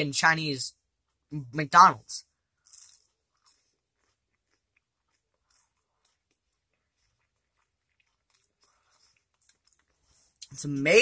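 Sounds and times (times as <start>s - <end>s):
person chewing food: 2.3s - 10.5s.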